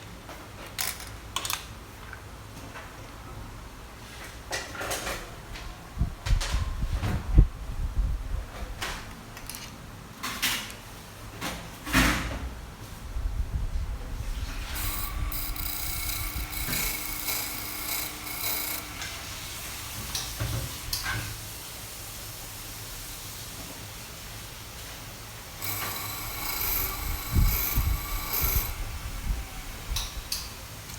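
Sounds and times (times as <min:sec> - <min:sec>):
sharpening machine whining: 0:14.6 - 0:19.7, 0:25.6 - 0:30.9
tools knocking and rubbing: 0:14.8 - 0:19.2.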